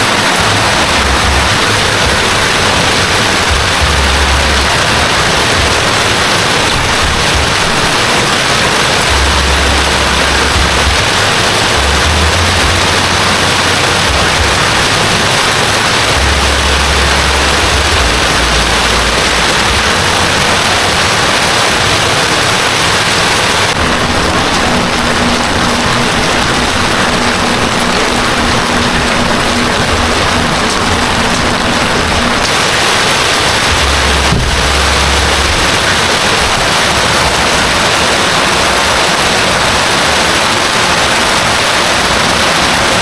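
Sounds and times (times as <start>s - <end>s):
low rumbling: 0.0s - 42.9s
heavy rain pouring: 0.0s - 43.0s.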